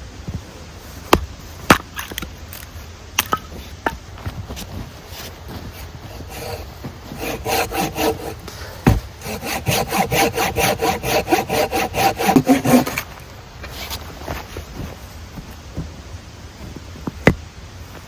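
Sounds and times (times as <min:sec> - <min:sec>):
hand saw cutting wood: 0:05.2 - 0:14.0.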